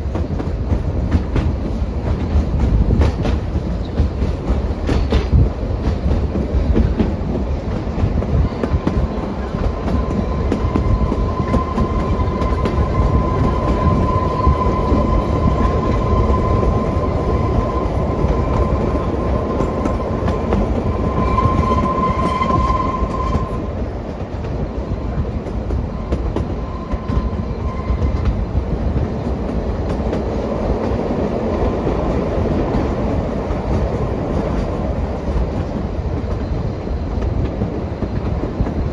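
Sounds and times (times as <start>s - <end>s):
train rumble: 0.0s - 38.9s
train wheels clickety-clack: 0.0s - 38.9s
high wheel squeal: 9.8s - 23.6s, 26.0s - 28.3s.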